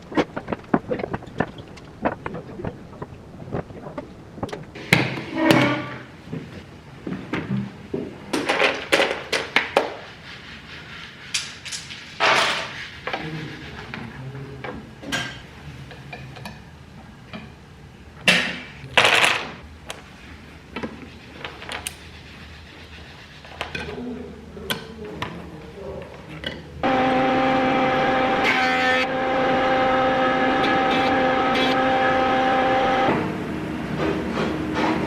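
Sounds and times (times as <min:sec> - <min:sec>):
wooden parts knocking and clicking: 0:00.0 - 0:05.2.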